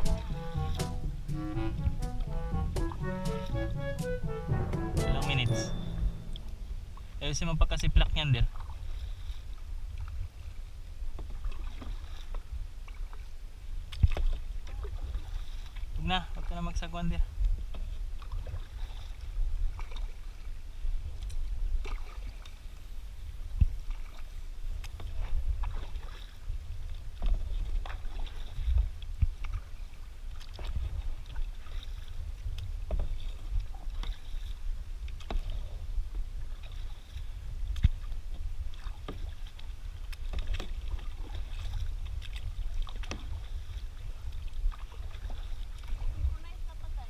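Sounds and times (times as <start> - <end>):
paddles splashing in water: 0.0 - 7.2, 8.4 - 47.0
steady low rumble: 0.0 - 8.2.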